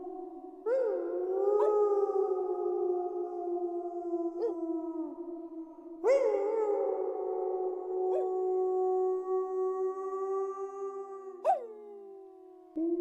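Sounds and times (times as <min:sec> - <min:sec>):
wolves howling: 0:00.0 - 0:12.1.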